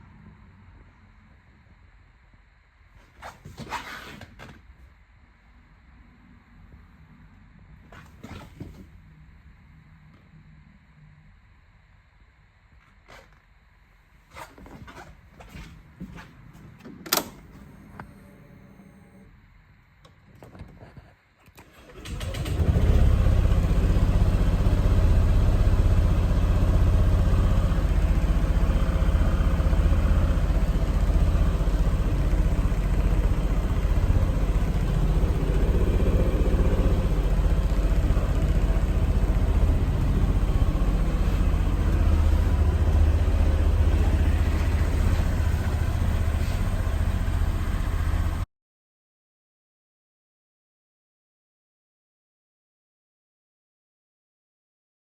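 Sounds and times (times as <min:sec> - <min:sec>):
scooter engine starting and idling: 0:21.6 - 0:48.5.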